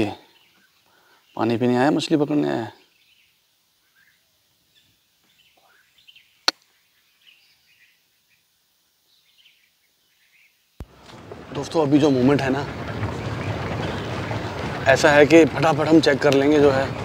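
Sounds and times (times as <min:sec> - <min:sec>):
bird chirps: 0:00.0 - 0:10.8.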